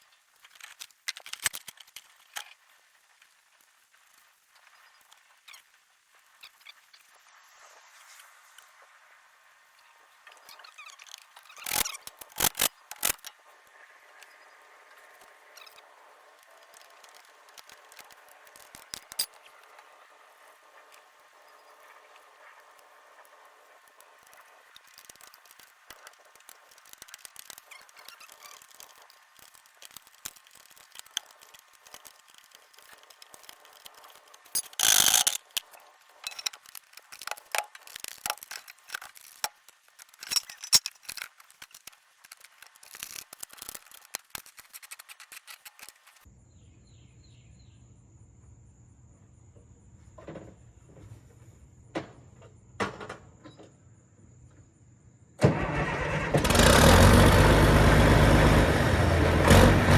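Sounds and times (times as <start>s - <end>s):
clicks and knocks of handwork: 16.4s - 19.9s, 23.9s - 46.3s
diesel engine starting and running: 55.4s - 59.9s.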